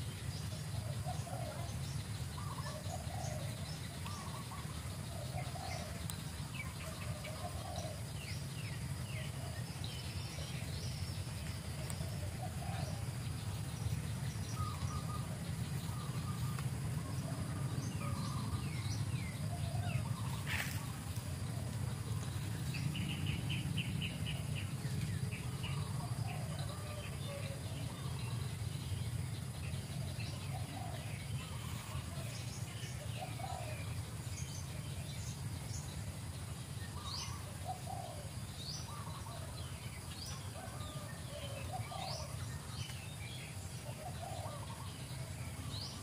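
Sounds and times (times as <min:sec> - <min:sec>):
bird trill: 0:00.0 - 0:11.4, 0:12.1 - 0:21.2
steady low rumble: 0:00.0 - 0:40.6
birds chirping: 0:00.0 - 0:46.0.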